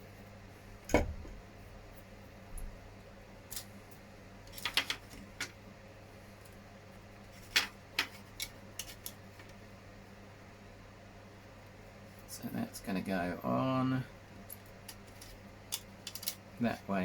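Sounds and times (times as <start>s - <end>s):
faint steady hum: 0.0s - 17.0s
plastic parts clicking and tapping: 14.6s - 16.4s.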